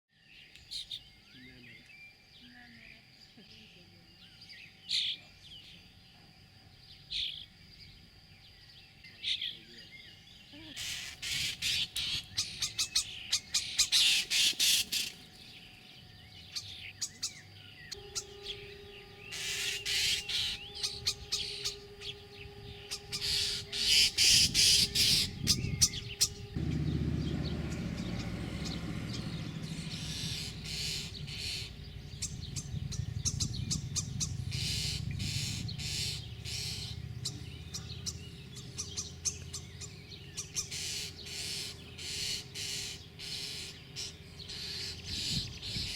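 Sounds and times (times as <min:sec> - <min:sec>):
nestlings raspy begging chirps: 0:08.6 - 0:45.9.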